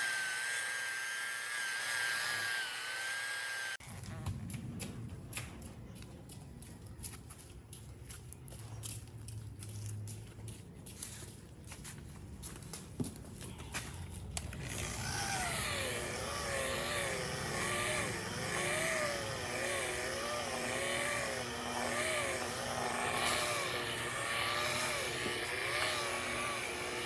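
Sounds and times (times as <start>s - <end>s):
power tool motor running: 0.0s - 3.8s, 14.6s - 27.0s.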